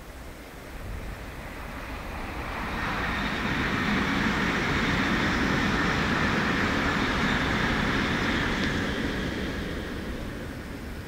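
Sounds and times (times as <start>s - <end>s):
high-speed train rushing: 0.4s - 11.0s.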